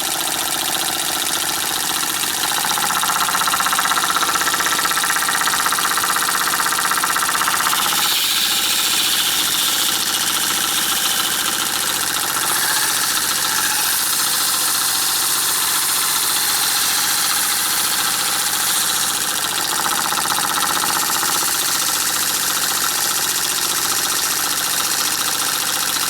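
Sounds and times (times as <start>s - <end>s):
steam engine mechanical beat: 2.3s - 22.8s
steam hissing: 7.6s - 19.3s.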